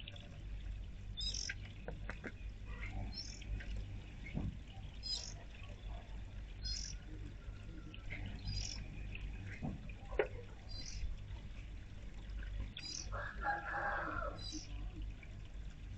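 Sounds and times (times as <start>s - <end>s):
steady low hum: 0.0s - 15.9s
small birds chirping: 1.2s - 3.6s, 4.2s - 6.0s, 6.6s - 7.2s, 8.0s - 9.6s, 10.6s - 11.1s, 12.6s - 13.1s, 14.4s - 14.8s.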